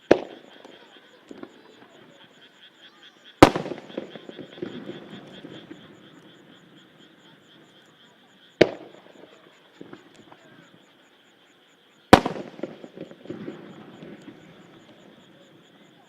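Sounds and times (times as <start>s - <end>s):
firework shells bursting: 0.0s - 1.6s, 3.4s - 5.9s, 8.6s - 10.3s, 12.1s - 15.2s
frogs croaking chorus: 0.0s - 16.0s.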